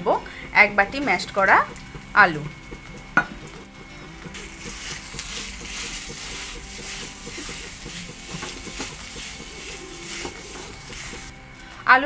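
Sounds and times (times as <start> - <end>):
potato sizzling in pan: 0.0 - 11.8
wooden spatula scraping pan: 4.3 - 11.3.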